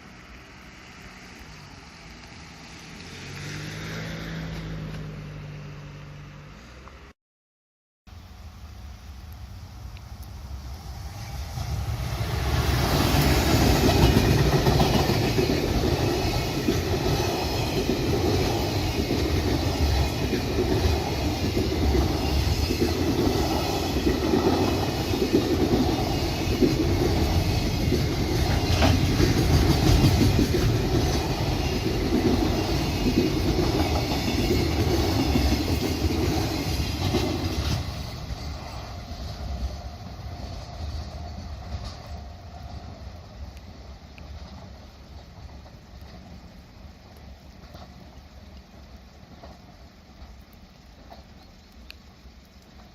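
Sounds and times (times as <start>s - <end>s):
train wheels clattering over rail joints: 12.4s - 38.8s.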